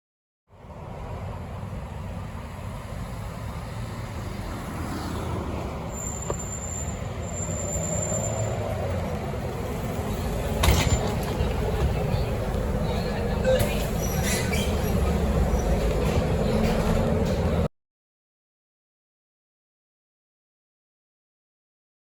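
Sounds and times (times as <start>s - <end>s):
bus diesel engine rumbling: 0.5s - 17.7s.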